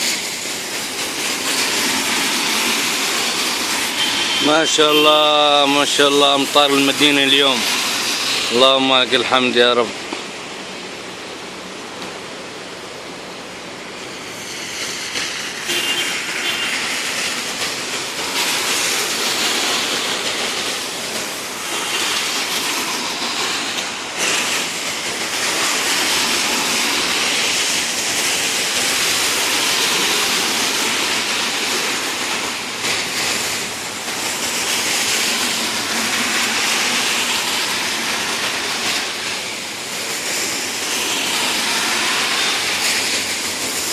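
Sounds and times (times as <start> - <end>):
heavy rain falling: 9.9 - 43.9.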